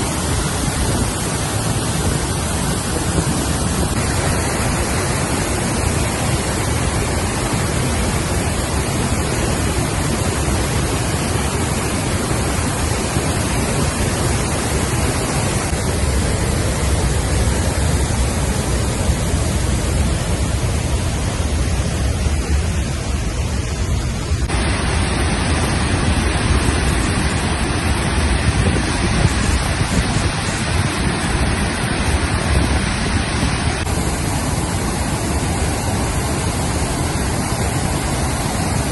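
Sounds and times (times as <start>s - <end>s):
water rushing over waterfall: 0.0s - 38.9s.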